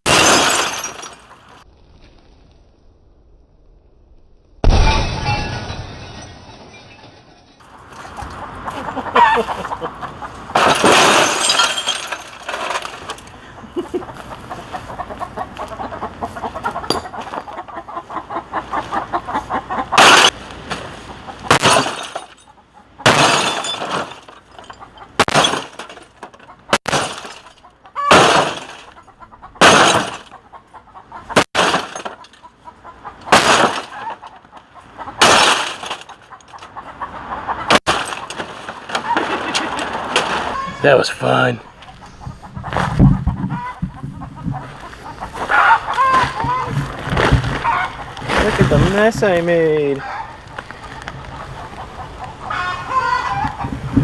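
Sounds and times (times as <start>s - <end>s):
sledgehammer smashing television: 0.0s - 1.0s, 10.6s - 13.1s, 21.5s - 22.2s, 23.1s - 24.2s, 25.2s - 26.0s, 26.8s - 27.4s, 28.1s - 28.9s, 29.6s - 30.2s, 31.4s - 32.2s, 33.3s - 34.1s, 35.2s - 36.1s, 37.7s - 40.5s
glass and plastic shattering: 0.0s - 1.4s, 4.6s - 8.2s, 10.5s - 13.3s, 19.9s - 20.4s, 21.5s - 29.0s, 29.6s - 30.4s, 31.4s - 32.4s, 33.3s - 34.3s, 35.2s - 36.6s, 37.7s - 40.6s.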